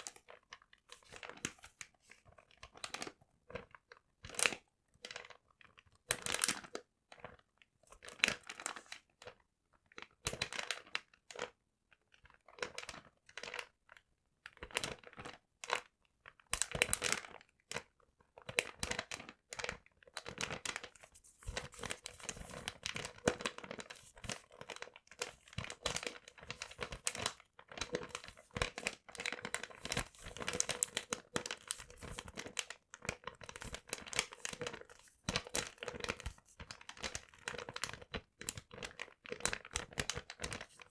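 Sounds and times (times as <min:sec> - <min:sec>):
paper crinkling and rustling: 0:20.3 - 0:40.9.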